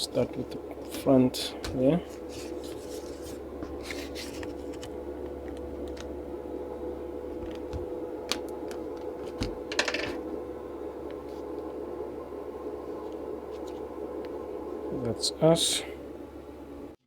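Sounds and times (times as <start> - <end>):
plastic scraping and handling: 1.7 - 5.0.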